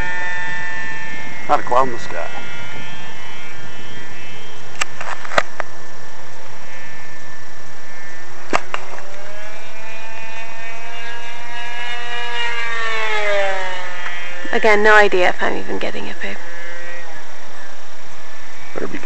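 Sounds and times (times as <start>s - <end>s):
model airplane motor whine: 0.0s - 19.0s
sharp clicks: 4.4s - 9.3s.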